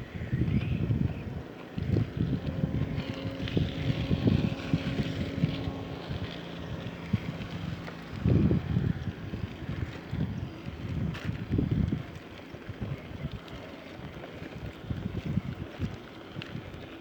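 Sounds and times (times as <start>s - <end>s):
steady low hum: 0.0s - 12.1s
wind buffeting microphone: 0.0s - 17.0s.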